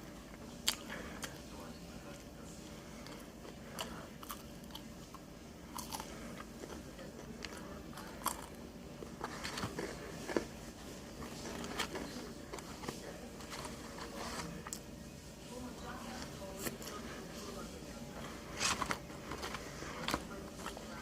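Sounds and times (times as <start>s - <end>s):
chewing: 0.5s - 14.9s
crisp fried food crunching: 3.1s - 14.8s.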